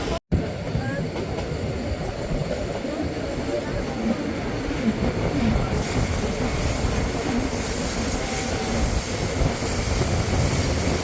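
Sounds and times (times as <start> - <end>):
train wheels rumbling on track: 0.0 - 11.0
train hiss: 4.8 - 11.0.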